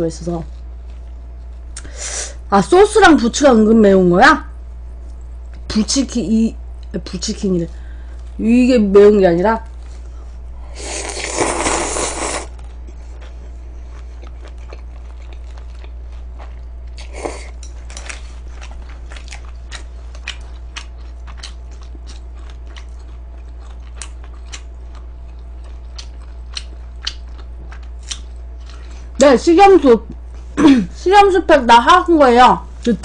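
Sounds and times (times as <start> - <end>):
crunching and chewing fried chicken: 9.6 - 29.2.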